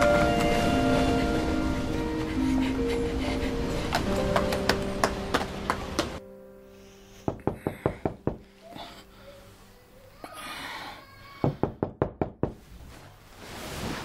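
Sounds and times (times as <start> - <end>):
knocking on a door: 7.3 - 8.5, 11.4 - 12.6.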